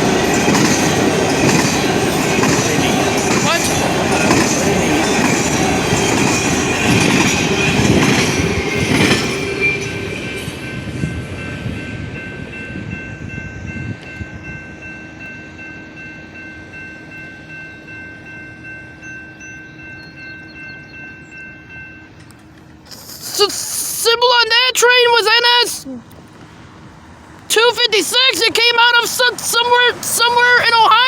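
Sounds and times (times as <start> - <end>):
crossing bell ringing: 0.0 - 25.8, 27.5 - 31.0
train passing with wheel clatter: 0.0 - 31.0.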